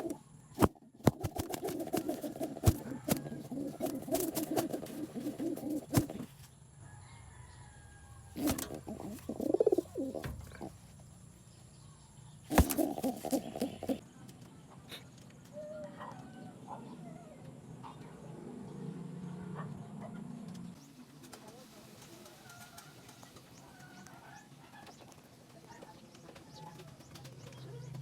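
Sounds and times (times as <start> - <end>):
pigeon cooing: 0.0 - 6.4, 8.4 - 10.8, 12.5 - 14.0
pigeon wings flapping: 0.0 - 6.4, 8.4 - 10.7, 12.5 - 14.0.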